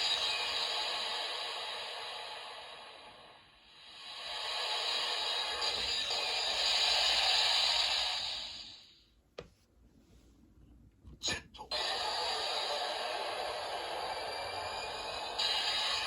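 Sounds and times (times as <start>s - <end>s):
toy whooshing sound effect: 11.7s - 16.0s.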